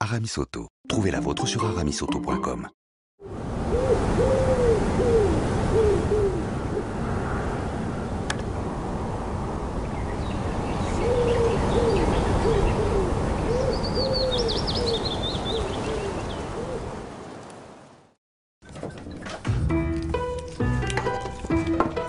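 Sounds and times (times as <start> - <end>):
low rising and falling bird calls: 3.7 - 6.8, 9.8 - 16.9.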